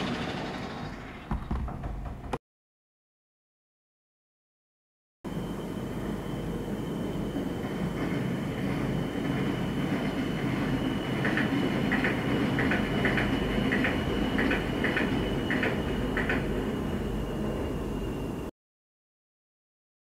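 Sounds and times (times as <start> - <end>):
thin high whine: 5.3 - 18.5
train low rumble: 5.3 - 18.5.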